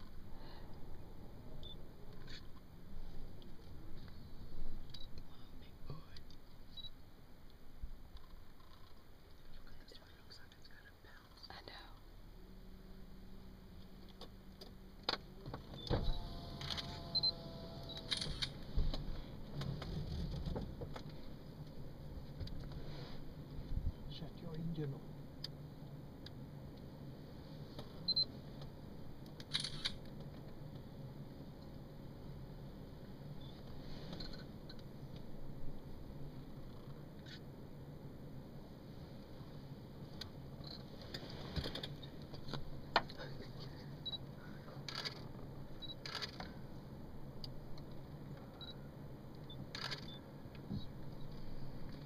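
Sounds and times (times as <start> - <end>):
low steady hum: 0.0 - 52.0
camera beep: 4.9 - 5.2, 6.7 - 6.9, 16.6 - 18.5, 28.1 - 28.3, 45.8 - 46.3, 49.5 - 50.2
camera shutter release: 16.5 - 18.6, 29.4 - 30.0, 44.9 - 45.2, 45.8 - 46.4, 49.7 - 50.2.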